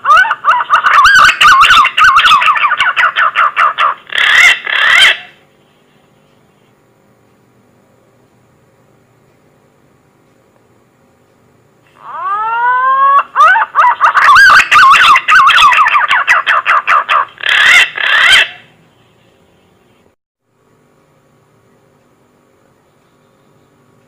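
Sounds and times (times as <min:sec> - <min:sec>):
faint hum: 0:00.0 - 0:24.0
pigeon whistling song: 0:00.1 - 0:05.3, 0:12.1 - 0:18.7.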